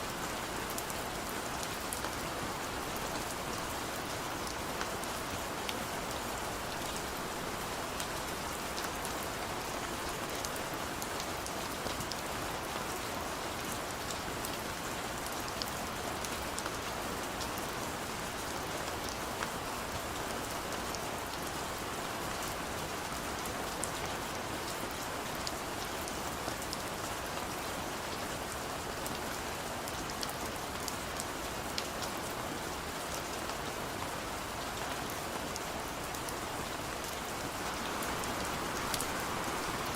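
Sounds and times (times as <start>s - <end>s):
heavy rain falling: 0.0s - 39.9s
raindrops ticking on a surface: 34.4s - 39.9s.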